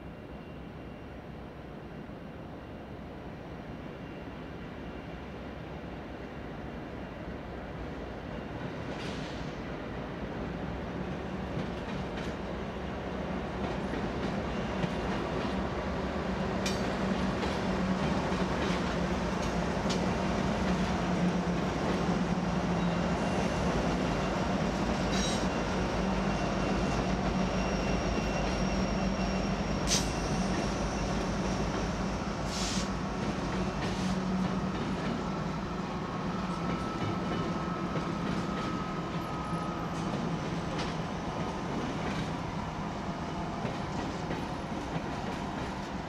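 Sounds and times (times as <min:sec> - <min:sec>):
freight train wheels rumbling: 0:08.3 - 0:46.0
high wheel squeal: 0:25.0 - 0:32.9.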